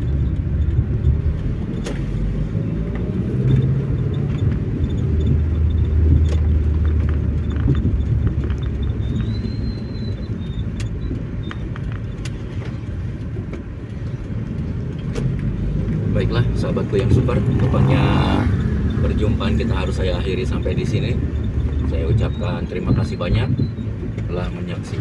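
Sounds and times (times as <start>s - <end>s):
light clicks and ticks: 0.0s - 17.8s
car engine and tyres rumbling: 0.0s - 25.0s.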